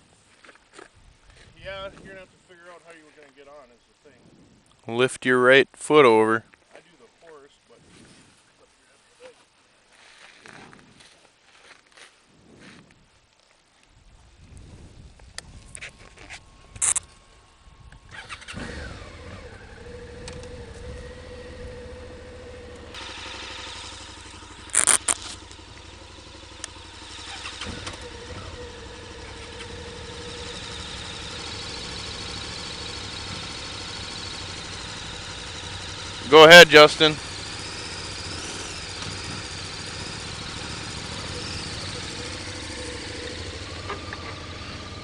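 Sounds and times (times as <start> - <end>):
sharp clicks: 15.3 - 17.1, 20.2 - 20.9, 24.2 - 25.8
motorcycle engine idling: 15.5 - 45.0.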